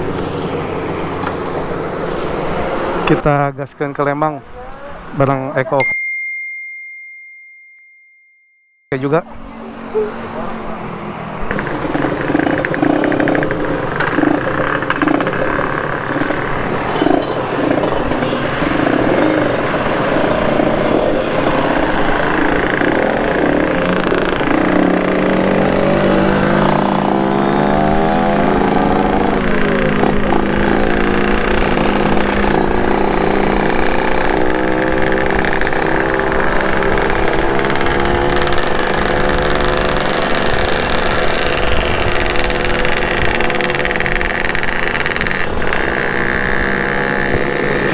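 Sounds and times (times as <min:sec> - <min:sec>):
two-stroke motorcycle engine revving: 0:00.0 - 0:03.5, 0:09.2 - 0:47.9.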